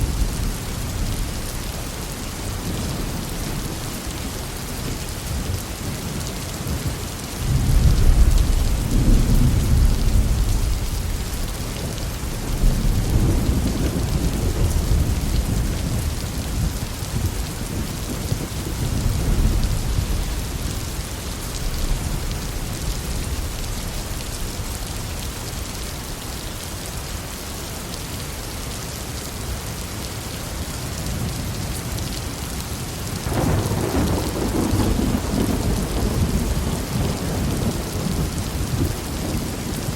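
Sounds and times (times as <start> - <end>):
heavy rain falling: 0.0 - 39.9
thunder rumbling: 7.4 - 25.2, 33.2 - 39.9.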